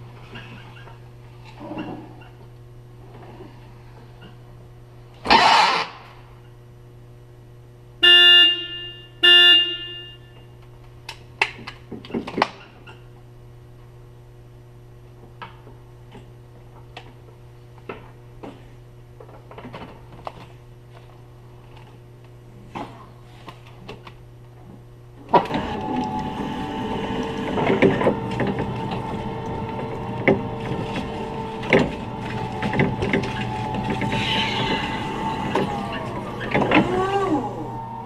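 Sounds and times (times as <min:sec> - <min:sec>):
steady low hum: 0:00.0 - 0:38.0
lift truck horn honks: 0:08.0 - 0:10.4.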